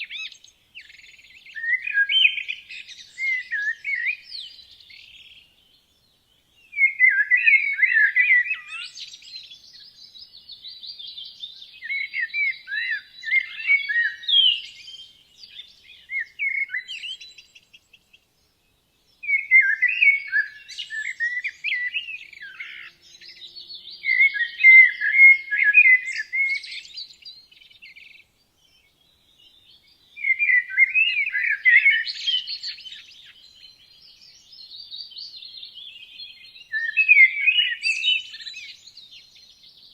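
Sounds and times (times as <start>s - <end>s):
songbird warbling: 0.0s - 5.4s, 11.2s - 18.2s, 19.2s - 28.2s, 30.2s - 39.4s.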